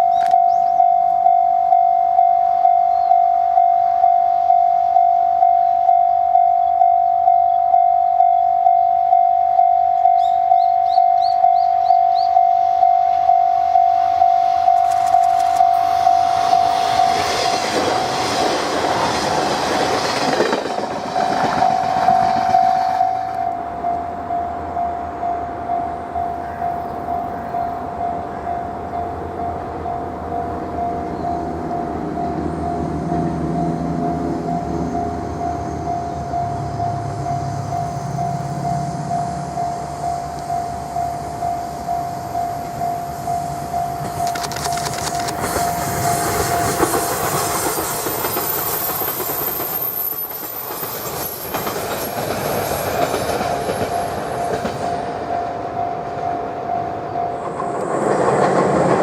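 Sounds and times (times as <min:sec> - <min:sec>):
level crossing bell dinging: 0:00.0 - 0:17.2
level-crossing alarm ringing: 0:00.0 - 0:59.0
train rolling and rail-joint clatter: 0:00.0 - 0:59.0.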